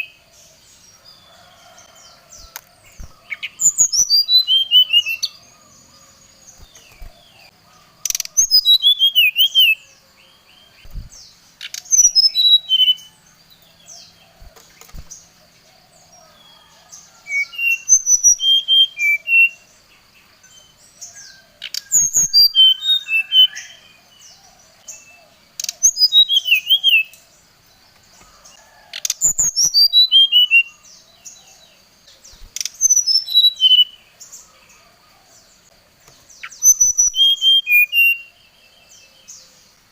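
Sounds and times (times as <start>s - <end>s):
bird singing whistled notes: 0.0s - 0.3s, 1.2s - 13.2s, 16.2s - 19.7s, 20.4s - 24.0s, 24.9s - 27.3s, 29.2s - 31.6s, 32.3s - 34.0s, 36.4s - 39.2s
bird chirps and warbles: 0.0s - 39.9s.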